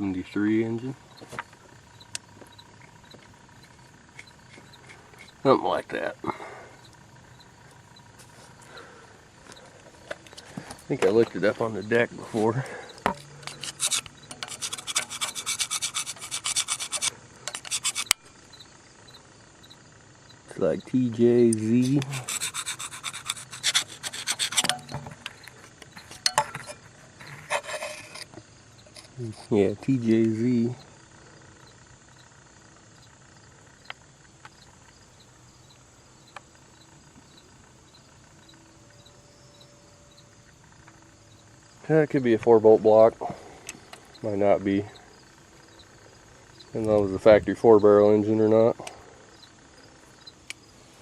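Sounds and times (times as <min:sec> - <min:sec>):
cricket chirping: 0:00.0 - 0:51.0
scraping strokes on metal: 0:11.1 - 0:18.4, 0:21.5 - 0:29.2.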